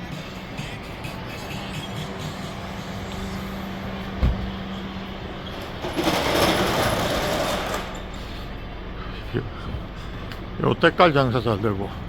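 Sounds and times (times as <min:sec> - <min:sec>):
vehicle engines humming: 0:00.0 - 0:12.0
low thump: 0:04.2 - 0:04.6.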